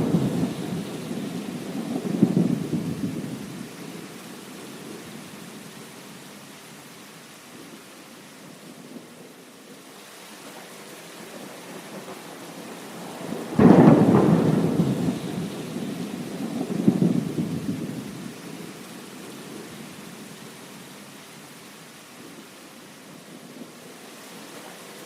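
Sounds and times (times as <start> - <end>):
thunder crack and rumble: 0.0 - 3.7, 13.2 - 18.3
heavy rain: 0.0 - 25.0.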